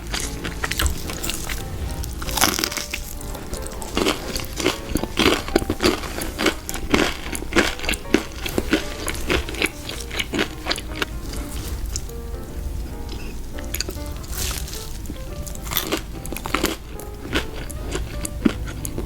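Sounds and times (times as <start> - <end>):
crunching crisp fried food: 0.0 - 12.2, 13.0 - 19.0
soft background music: 0.0 - 19.0.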